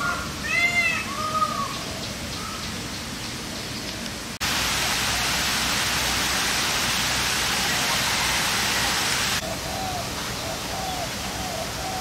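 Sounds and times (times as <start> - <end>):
steady rushing noise: 4.2 - 10.3
bird calls: 7.6 - 12.0.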